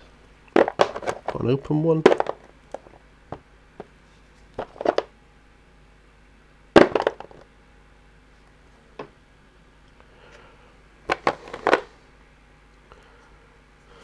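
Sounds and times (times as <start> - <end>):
plastic pots clattering: 0.0 - 3.9, 4.6 - 5.1, 6.8 - 7.4, 11.1 - 12.0
plastic pots knocking and clicking: 0.5 - 3.9, 4.6 - 5.1, 6.8 - 7.4, 11.1 - 11.9.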